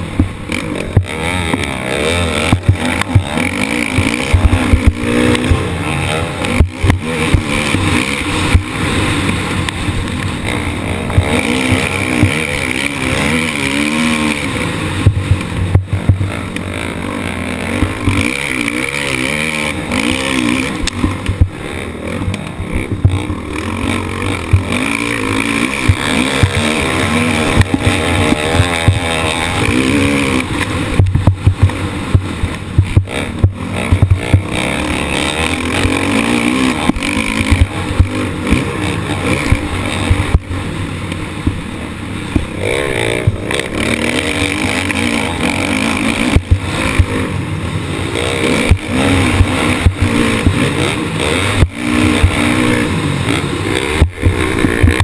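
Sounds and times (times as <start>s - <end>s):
motocross bike engine revving: 0.0s - 55.0s
sharp knocks: 24.4s - 34.6s.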